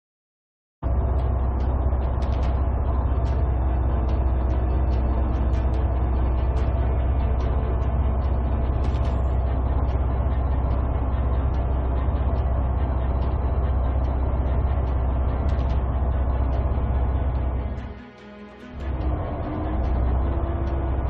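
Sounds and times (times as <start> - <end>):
heavy vehicle engine rumble: 0.8 - 21.0.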